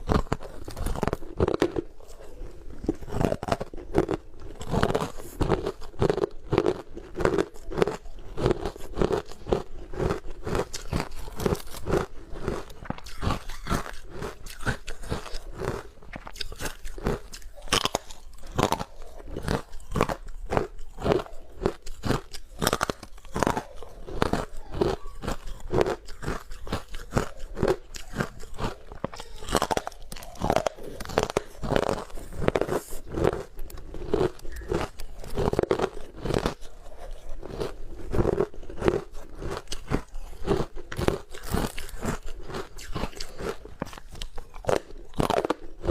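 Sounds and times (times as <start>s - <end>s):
chewing ice crunches: 0.0s - 45.9s.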